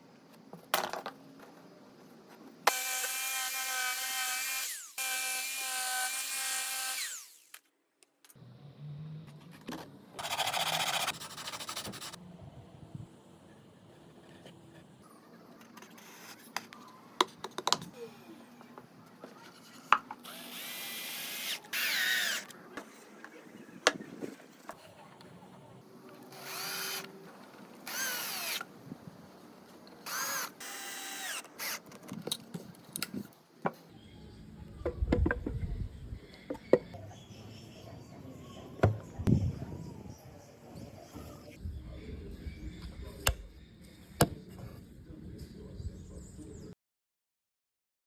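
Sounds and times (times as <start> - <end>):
electric drill running: 2.7 - 7.6, 20.2 - 22.5, 26.3 - 27.1, 27.9 - 28.6, 30.0 - 31.8.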